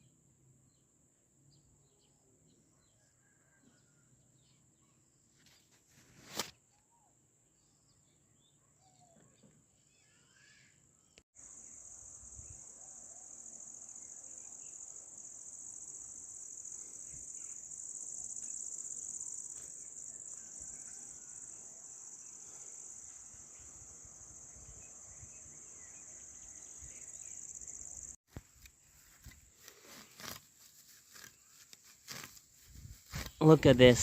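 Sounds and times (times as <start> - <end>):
insect chorus chirring: 11.4 - 28.2
rustling: 28.3 - 34.0.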